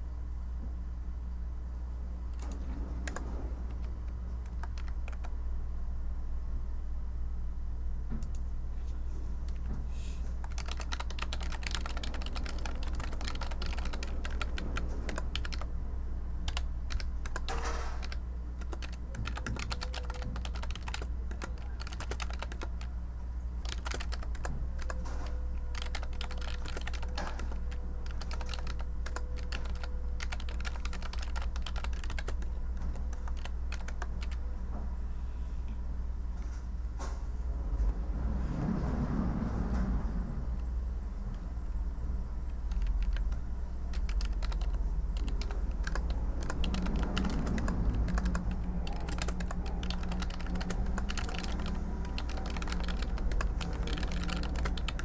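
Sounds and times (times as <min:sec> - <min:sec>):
constant low hum: 0:00.0 - 0:55.0
typing on a keyboard: 0:02.3 - 0:05.3, 0:10.4 - 0:15.7, 0:16.5 - 0:22.9, 0:23.6 - 0:34.4, 0:42.5 - 0:55.0.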